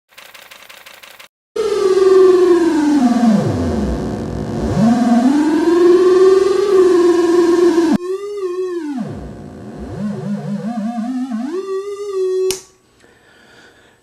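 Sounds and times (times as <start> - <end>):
buzzy warbling synth tone: 1.6 - 12.5.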